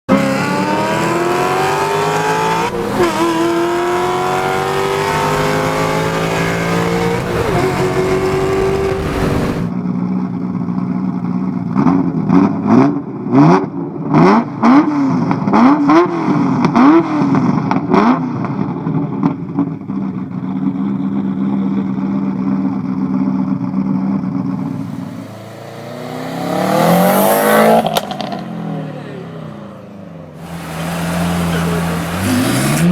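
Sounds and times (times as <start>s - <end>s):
car accelerating through gears: 0.1s - 9.7s, 24.6s - 32.9s.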